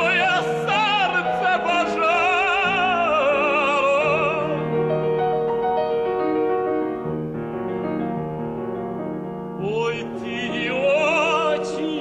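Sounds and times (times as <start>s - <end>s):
operatic tenor singing: 0.0s - 4.8s, 9.6s - 12.0s
piano accompaniment: 0.0s - 12.0s.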